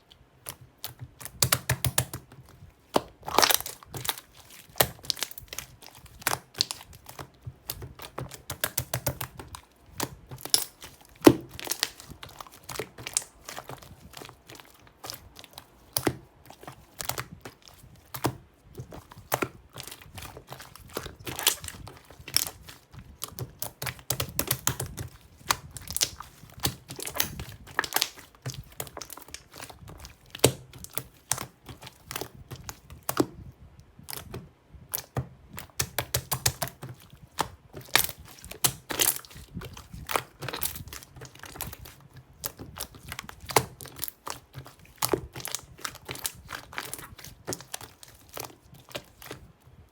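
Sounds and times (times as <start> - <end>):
packaging crinkling and crackling: 0.0 - 33.3, 35.0 - 49.5.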